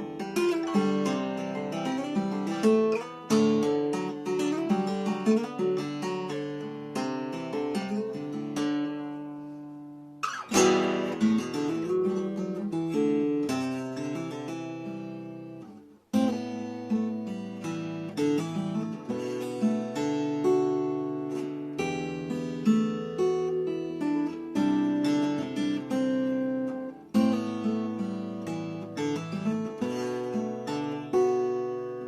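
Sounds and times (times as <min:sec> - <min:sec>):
guitar picked and strummed: 0:00.0 - 0:32.0.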